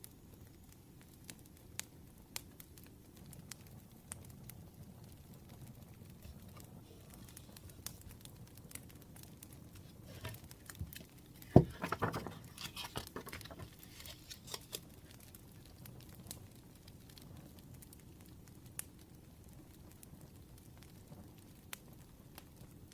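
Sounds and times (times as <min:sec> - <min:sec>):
wood fire crackling: 0:00.0 - 0:22.9
rustling and handling: 0:09.7 - 0:15.0.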